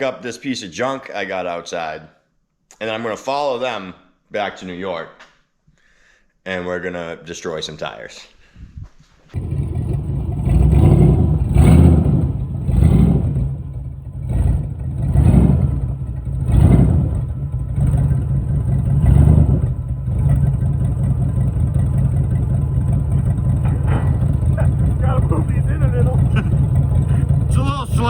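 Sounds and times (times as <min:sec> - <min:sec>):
truck engine revving and idling: 0:09.4 - 0:28.0.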